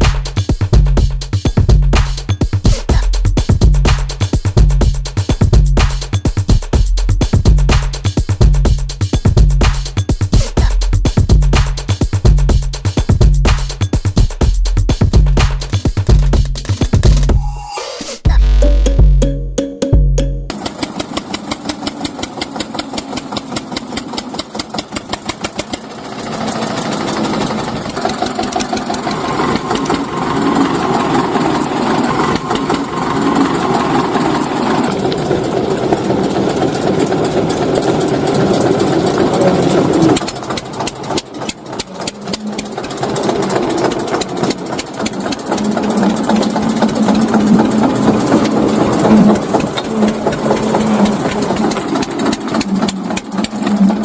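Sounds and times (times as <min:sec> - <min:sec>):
small tractor engine running: 0:20.5 - 0:54.0.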